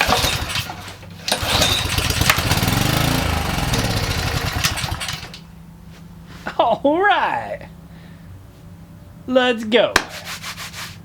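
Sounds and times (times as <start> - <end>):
small engine sputtering: 0.0 - 5.4.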